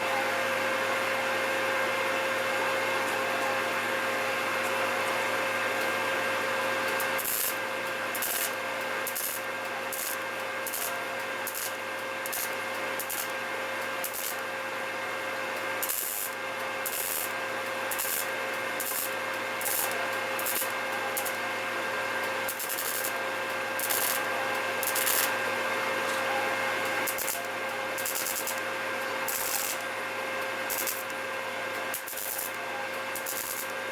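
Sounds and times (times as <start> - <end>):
power tool running: 6.9 - 33.9.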